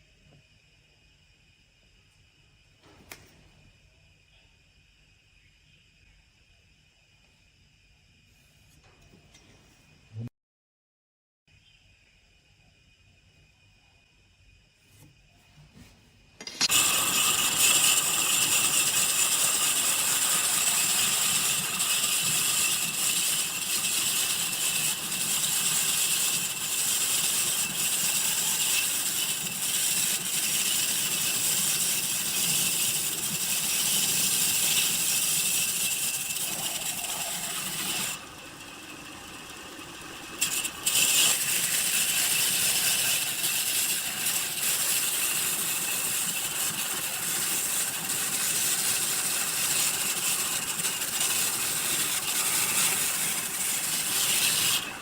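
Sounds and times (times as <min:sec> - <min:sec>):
woodworking machine cutting wood: 0:16.4 - 0:55.0.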